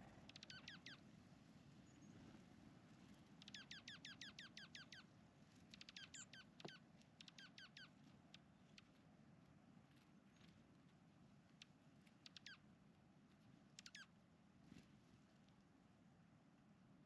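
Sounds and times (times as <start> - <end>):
small bird chirping: 0.3 - 1.0, 3.4 - 5.1, 5.7 - 9.0, 11.6 - 12.6, 13.8 - 14.1.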